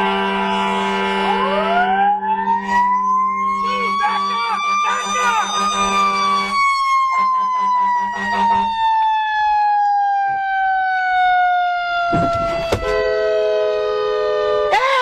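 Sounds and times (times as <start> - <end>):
emergency vehicle siren winding down: 0.0 - 15.0
pulsing low tone: 1.2 - 4.0
sharp knock: 12.1 - 13.0.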